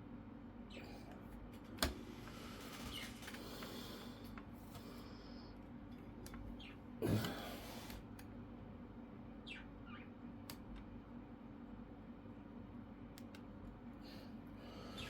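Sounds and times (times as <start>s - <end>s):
pet birds chirping: 6.4s - 6.9s, 9.4s - 10.3s.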